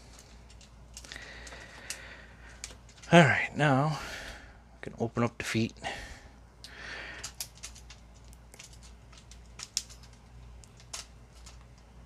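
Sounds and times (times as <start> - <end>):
plastic toy parts clicking: 7.2 - 11.9.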